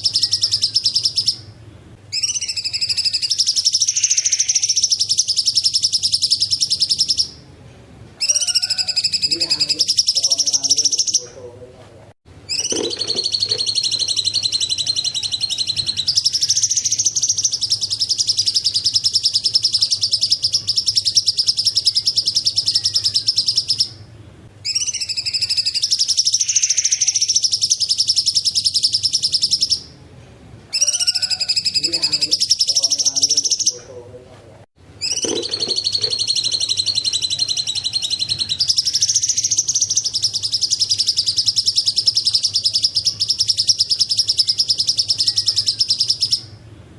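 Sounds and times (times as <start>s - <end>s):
bird singing chattering trill: 0.0s - 7.4s, 8.2s - 11.4s, 12.5s - 29.9s, 30.7s - 33.9s, 35.0s - 46.6s.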